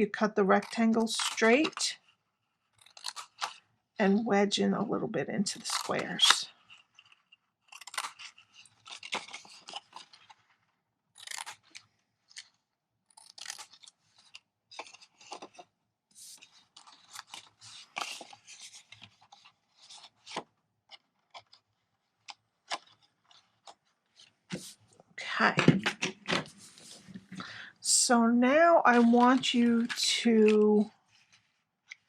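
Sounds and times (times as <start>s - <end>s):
paper crinkling and rustling: 0.6s - 3.7s, 5.6s - 12.6s, 13.2s - 24.9s, 28.9s - 32.0s
scissors snipping paper: 2.8s - 3.6s, 5.6s - 10.2s, 11.2s - 12.5s, 13.1s - 15.5s.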